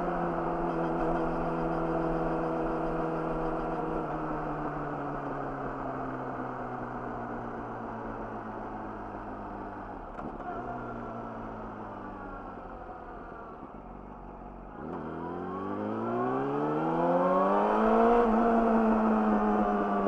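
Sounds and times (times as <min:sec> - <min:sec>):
motorcycle engine revving: 0:00.0 - 0:05.8, 0:14.7 - 0:20.0.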